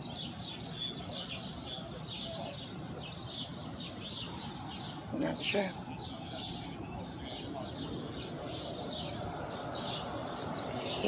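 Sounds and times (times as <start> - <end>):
small birds chirping: 0.0 - 11.0
steady background noise: 0.0 - 11.0.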